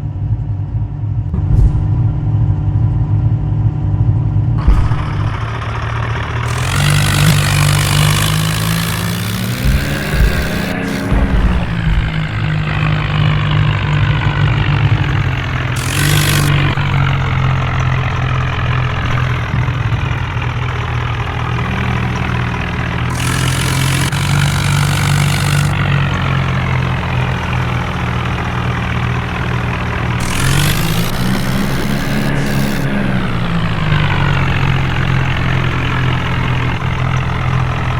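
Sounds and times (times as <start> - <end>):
engine running steadily: 4.2 - 37.9
hiss: 4.6 - 12.8, 15.8 - 19.3, 23.1 - 25.9, 30.2 - 37.9.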